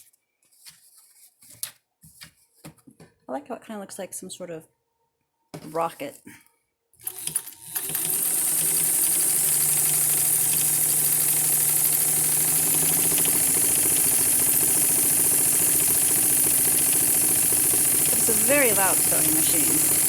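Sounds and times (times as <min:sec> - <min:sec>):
sewing machine running: 0:07.0 - 0:20.0.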